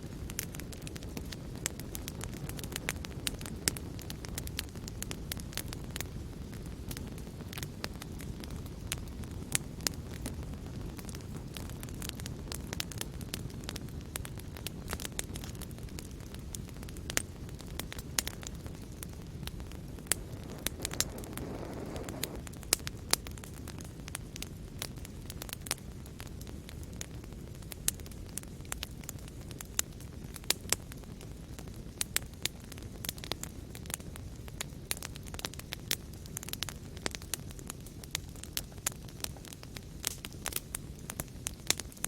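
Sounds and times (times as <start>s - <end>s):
low rumble of flames: 0.0s - 42.0s
wood fire crackling and popping: 0.0s - 42.0s
soft hiss: 16.5s - 23.7s.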